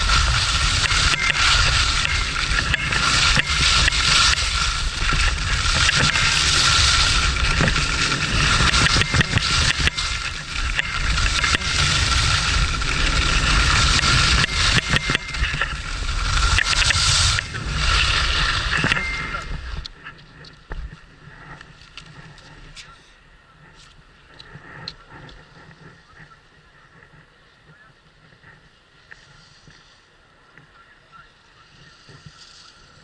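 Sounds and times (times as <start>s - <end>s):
wind buffeting microphone: 0.0s - 22.7s
skis scraping over snow: 0.0s - 30.5s, 31.4s - 33.0s.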